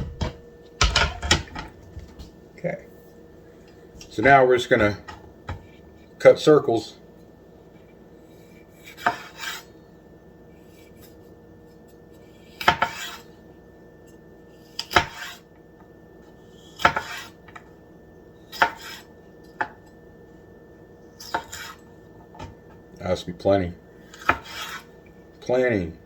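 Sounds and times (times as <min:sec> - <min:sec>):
knife knocking on cutting board: 0:00.0 - 0:01.6
knife scraping: 0:07.9 - 0:09.8, 0:10.6 - 0:13.4, 0:14.6 - 0:15.5, 0:16.5 - 0:17.4, 0:18.5 - 0:19.2, 0:21.2 - 0:21.9, 0:24.0 - 0:25.0
knife cutting peppers: 0:08.8 - 0:09.7, 0:10.6 - 0:13.3, 0:14.7 - 0:15.4, 0:16.6 - 0:17.4, 0:18.5 - 0:19.1, 0:21.2 - 0:21.8, 0:24.1 - 0:24.9.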